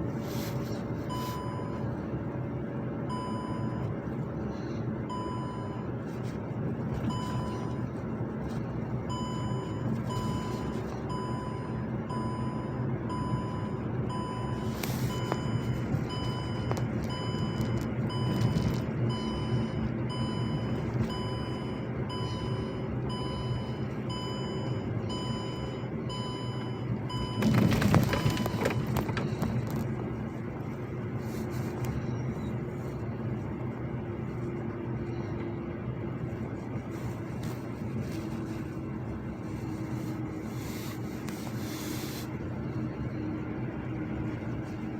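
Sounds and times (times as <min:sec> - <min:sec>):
engine rumble: 0:00.0 - 0:44.9
reversing alarm beeping: 0:01.1 - 0:01.9, 0:03.1 - 0:03.9, 0:05.1 - 0:05.9, 0:07.0 - 0:07.8, 0:09.0 - 0:29.6.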